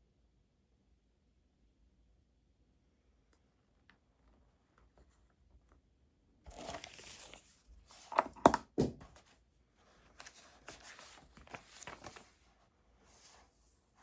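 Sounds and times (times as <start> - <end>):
paper rustling and crinkling: 6.5 - 14.0.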